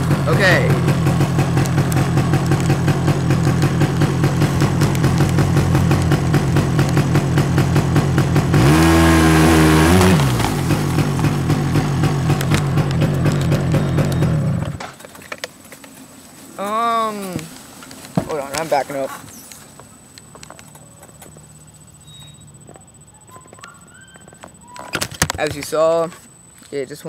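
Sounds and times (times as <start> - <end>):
atv engine running and revving: 0.0 - 14.8.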